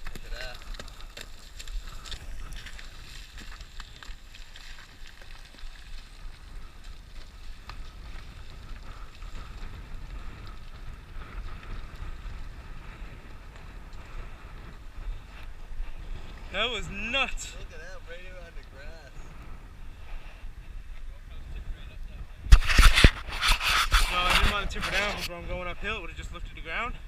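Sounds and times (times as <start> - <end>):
wind buffeting microphone: 0.0 - 27.0
faint clicks and scuffs: 22.5 - 25.3.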